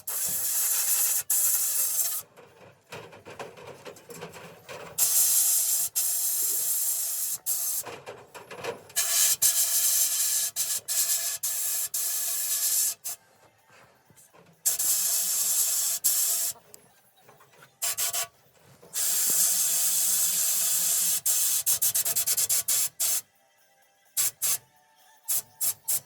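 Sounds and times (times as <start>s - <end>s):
harsh hissing rubbing noise: 0.0s - 2.2s, 5.0s - 7.8s, 14.7s - 16.6s, 18.9s - 21.7s.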